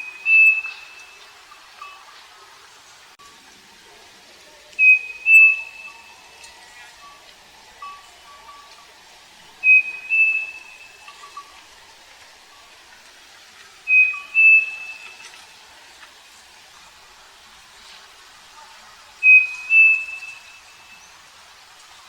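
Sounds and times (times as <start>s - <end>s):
bird two-note whistle: 0.0s - 1.2s, 4.8s - 6.1s, 9.6s - 11.4s, 13.9s - 15.2s, 19.2s - 20.8s.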